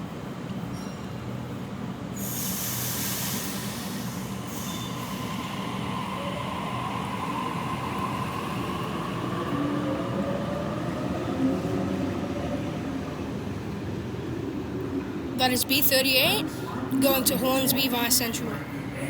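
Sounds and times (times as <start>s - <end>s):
electric train humming: 2.2s - 19.0s
train whine rising in pitch: 3.0s - 12.9s.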